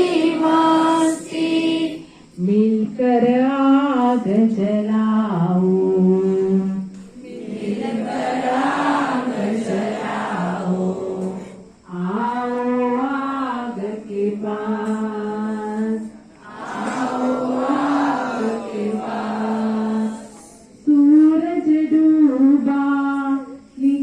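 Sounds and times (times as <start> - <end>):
young voices singing in unison: 0.0 - 21.0.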